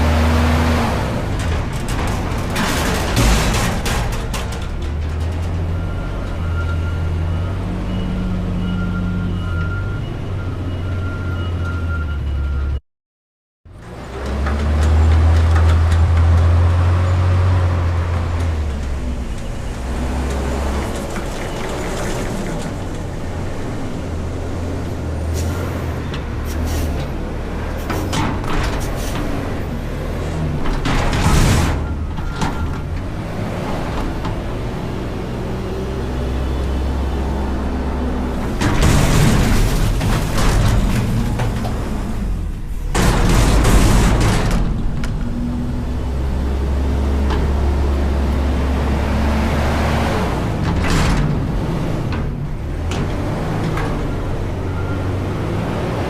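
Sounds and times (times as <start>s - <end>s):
garbage truck engine hum: 0.0s - 12.6s, 13.7s - 56.0s.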